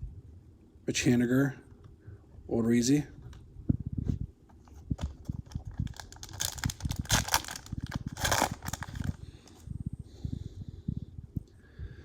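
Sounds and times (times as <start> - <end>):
foil wrapper crinkling and tearing: 5.0 - 9.2.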